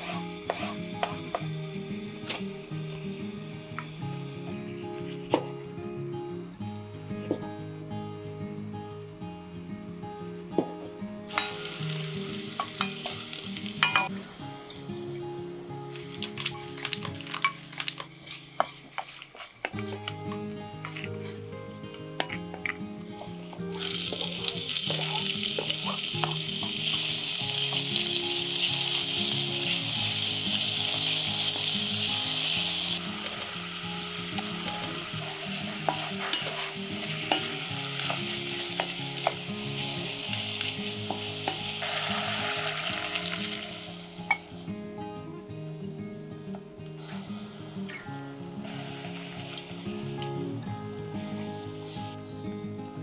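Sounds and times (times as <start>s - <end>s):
wooden spatula stirring and tapping: 0.0s - 1.4s, 16.8s - 21.2s, 35.7s - 36.7s
vegetables sizzling in oil: 0.0s - 5.7s, 11.3s - 45.4s, 47.0s - 52.2s.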